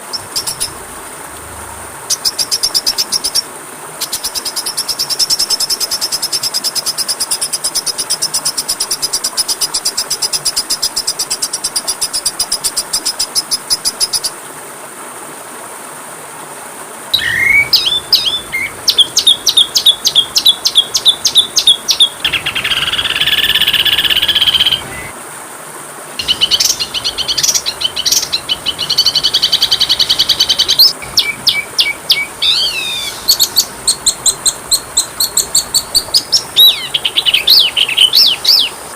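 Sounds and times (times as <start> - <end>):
bird trilling and chirping: 0.0 - 0.9, 17.2 - 25.1, 26.2 - 38.8
steady hiss: 0.0 - 38.9.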